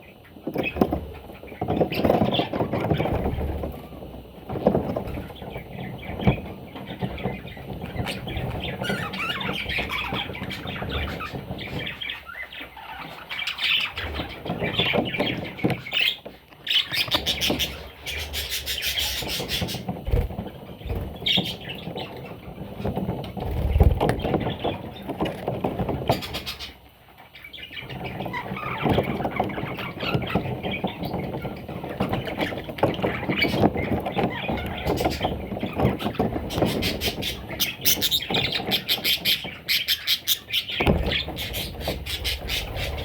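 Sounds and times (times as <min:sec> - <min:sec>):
budgerigars chirping and squawking: 0:00.2 - 0:03.6, 0:04.6 - 0:43.0
soft thumps: 0:40.7 - 0:43.0
low rumbling: 0:40.8 - 0:43.0.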